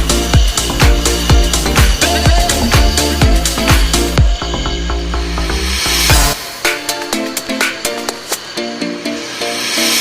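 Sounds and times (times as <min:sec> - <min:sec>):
kick drum beat: 0:00.0 - 0:04.4, 0:06.1 - 0:07.8
electronic dance music: 0:00.0 - 0:10.0.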